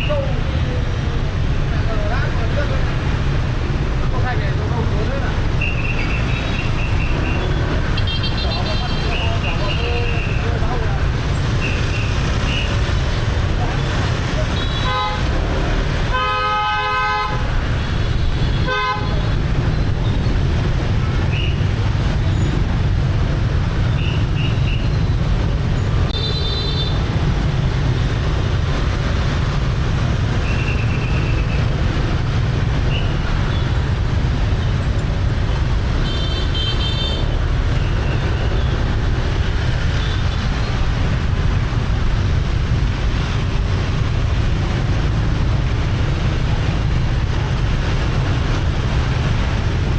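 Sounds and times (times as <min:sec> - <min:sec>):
traffic rumble: 0:00.0 - 0:49.9
vehicle horns honking: 0:05.6 - 0:10.4, 0:14.6 - 0:15.4, 0:16.1 - 0:17.5, 0:18.5 - 0:19.4, 0:26.1 - 0:27.0, 0:36.0 - 0:38.8.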